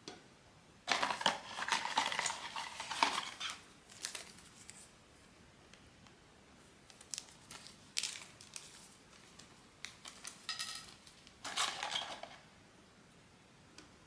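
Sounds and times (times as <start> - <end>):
packaging rustling: 0.9 - 5.0, 6.8 - 12.4
plastic pieces clicking: 9.9 - 12.4.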